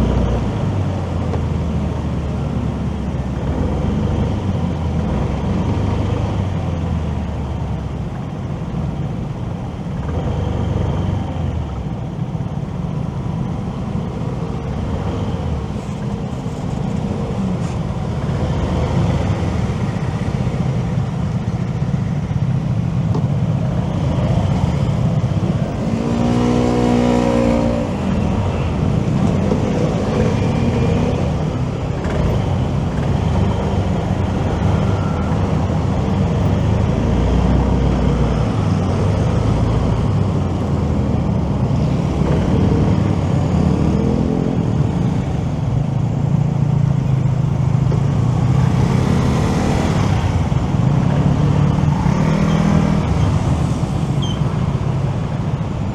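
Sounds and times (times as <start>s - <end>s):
motorcycle engine and road noise: 0.0s - 55.9s
vehicle engine revving: 23.1s - 55.8s.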